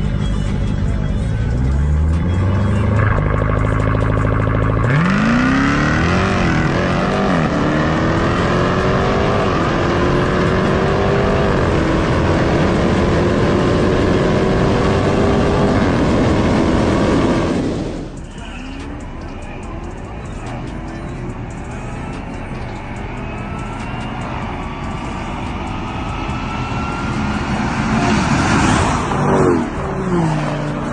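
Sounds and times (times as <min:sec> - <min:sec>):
car engine accelerating hard: 0:00.9 - 0:18.2, 0:20.0 - 0:30.9.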